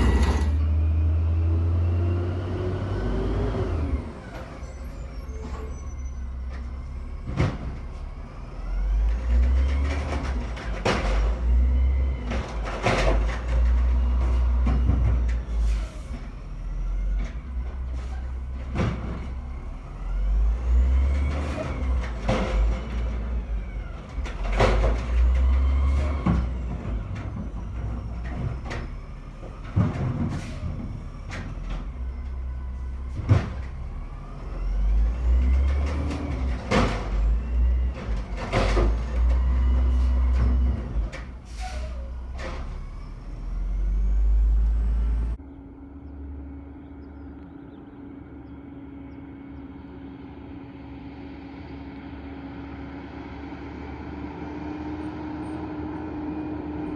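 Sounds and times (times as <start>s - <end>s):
metal clanks and bangs: 0.0s - 0.8s, 20.7s - 43.3s
garbage truck engine rumbling: 0.0s - 56.9s.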